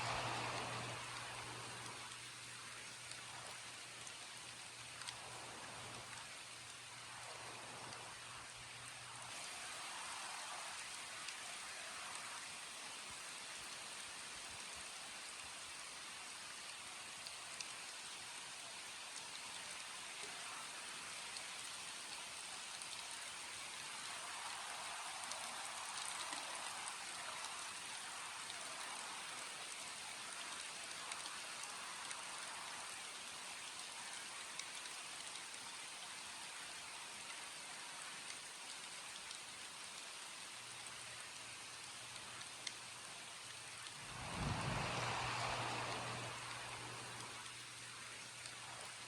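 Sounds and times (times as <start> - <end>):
raindrops ticking: 0.0 - 8.8, 22.0 - 49.0
steady rain hiss: 0.0 - 49.0
low rumble: 43.9 - 47.4.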